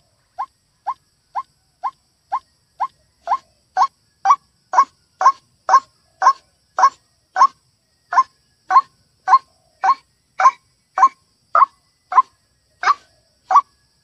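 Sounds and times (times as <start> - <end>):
bird harsh croaking calls: 0.4 - 13.7.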